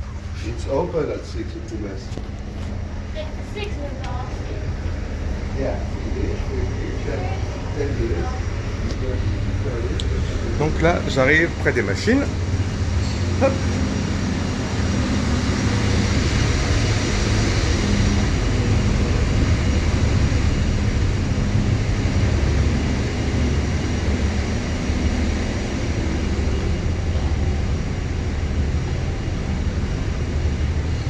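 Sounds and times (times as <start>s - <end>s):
ship machinery drone: 0.0s - 31.0s.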